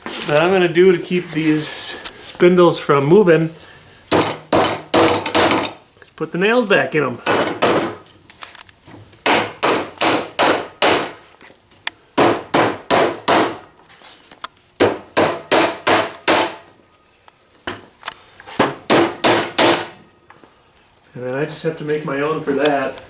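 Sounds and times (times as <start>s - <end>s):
hammer hitting nails: 4.1s - 5.8s, 7.3s - 8.1s, 9.2s - 11.3s, 12.2s - 13.7s, 14.8s - 16.7s, 18.6s - 20.1s.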